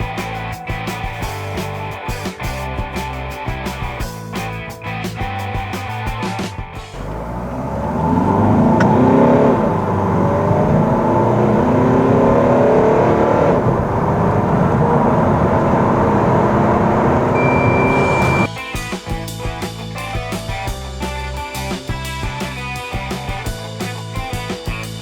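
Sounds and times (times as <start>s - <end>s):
car engine accelerating: 5.2s - 18.5s.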